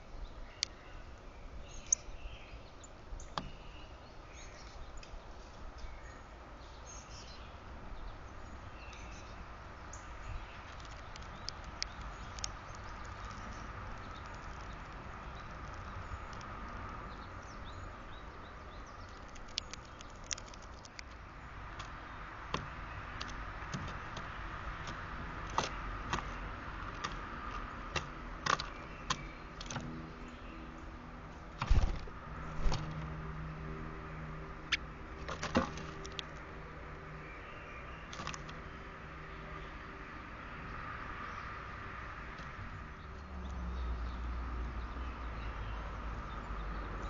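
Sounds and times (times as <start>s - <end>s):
birds pecking on a feeder: 10.0s - 30.7s, 34.6s - 36.6s, 38.1s - 38.7s.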